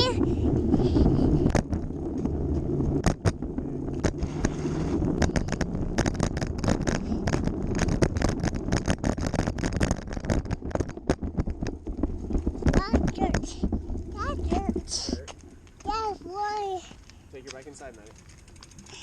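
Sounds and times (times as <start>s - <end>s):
bicycle tyres rumbling: 0.0s - 19.0s.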